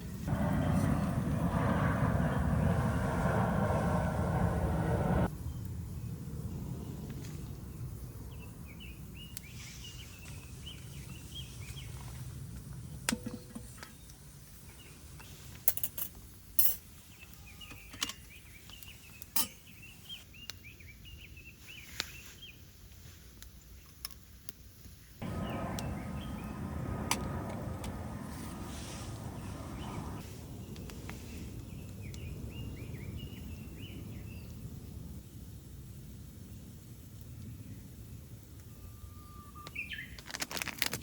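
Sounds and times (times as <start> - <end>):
steady rushing noise: 0.1 - 5.3, 25.2 - 35.2
small birds chirping: 25.2 - 35.0, 37.2 - 40.2.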